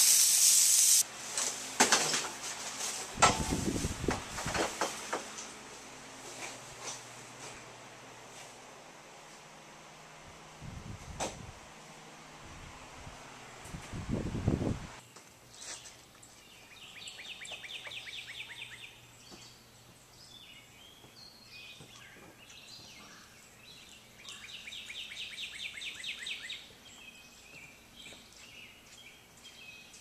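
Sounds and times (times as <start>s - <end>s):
songbird trilling: 16.7s - 19.5s, 20.3s - 27.4s.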